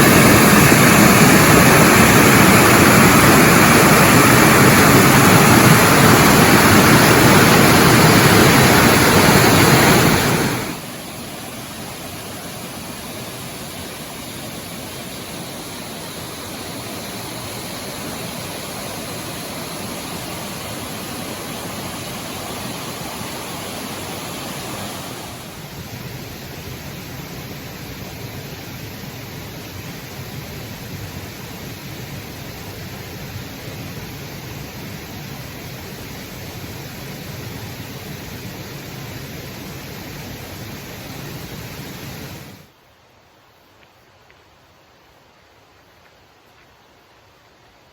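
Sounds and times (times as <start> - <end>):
waterfall rushing: 0.0 - 28.3.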